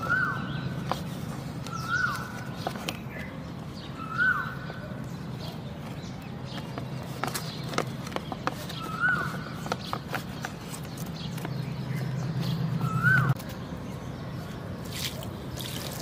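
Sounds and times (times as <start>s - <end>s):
bird calling: 0.0s - 16.0s.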